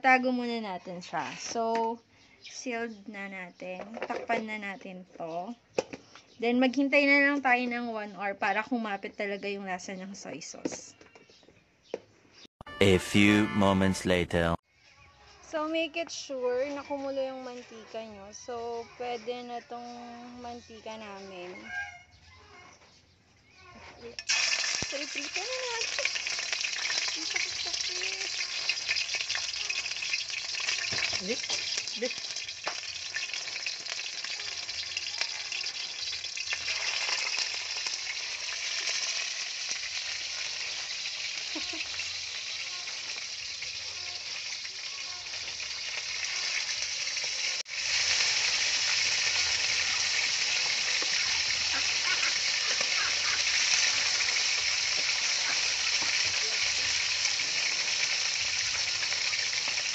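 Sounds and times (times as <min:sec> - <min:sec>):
chicken frying in hot oil: 0:24.2 - 0:59.9.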